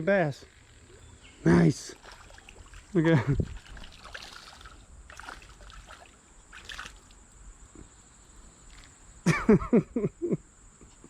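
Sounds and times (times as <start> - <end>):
creek water trickling: 0.4 - 9.2
small water splashes: 1.8 - 7.3.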